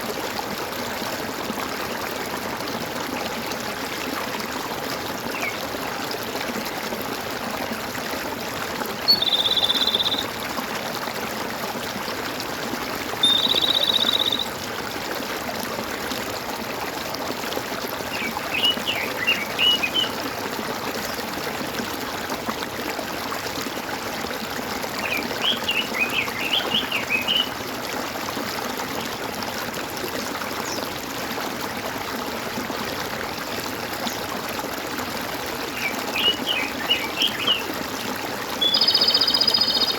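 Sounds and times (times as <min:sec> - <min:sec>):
water gurgling and trickling: 0:00.0 - 0:39.9
birds twittering: 0:09.1 - 0:10.3, 0:13.2 - 0:14.5, 0:18.2 - 0:20.1, 0:25.0 - 0:27.5, 0:35.8 - 0:37.7, 0:38.6 - 0:39.9.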